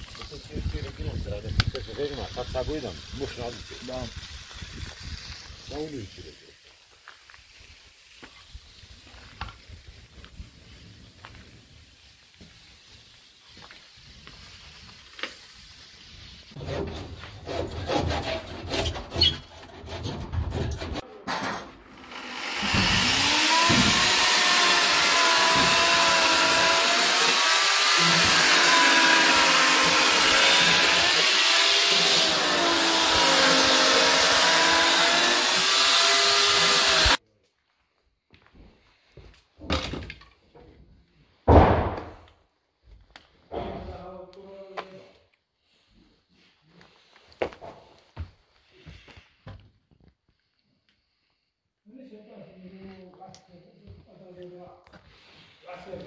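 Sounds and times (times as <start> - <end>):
knocks and scraping: 16.6 - 21.9, 22.6 - 37.2
power tool cutting: 21.8 - 37.2.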